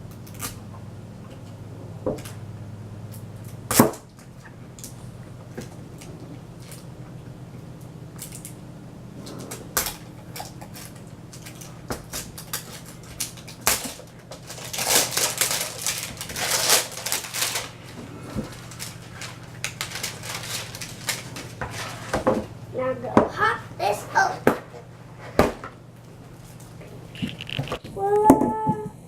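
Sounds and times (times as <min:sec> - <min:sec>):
steady low hum: 0:00.0 - 0:29.0
plastic packaging crinkling: 0:09.8 - 0:22.2, 0:26.3 - 0:27.8.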